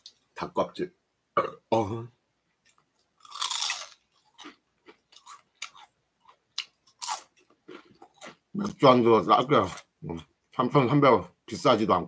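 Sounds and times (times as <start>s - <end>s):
crunchy chewing of fried chicken: 2.6s - 8.5s.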